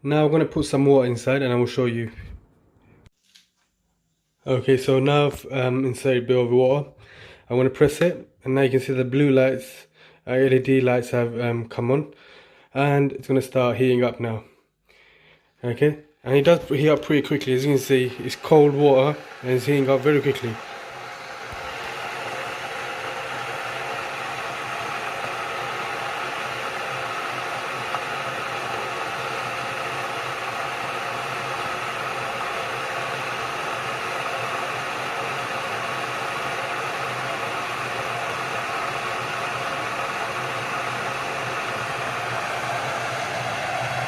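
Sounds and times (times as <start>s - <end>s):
electric kettle heating water: 16.6s - 44.0s.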